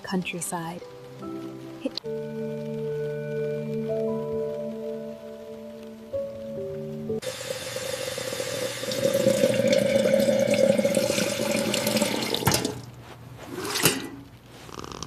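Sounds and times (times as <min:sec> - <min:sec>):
water running from tap: 0:07.2 - 0:12.9.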